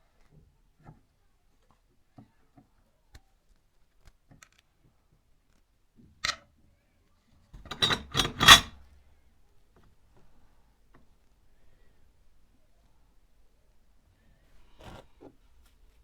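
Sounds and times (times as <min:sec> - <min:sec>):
metal clicks and scraping: 0:07.6 - 0:08.8.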